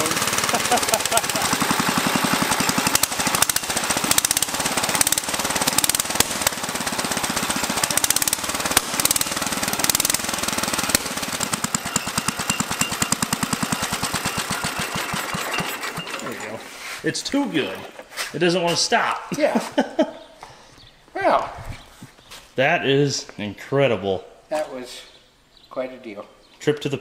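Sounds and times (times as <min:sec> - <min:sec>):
small engine running: 0:00.0 - 0:18.1.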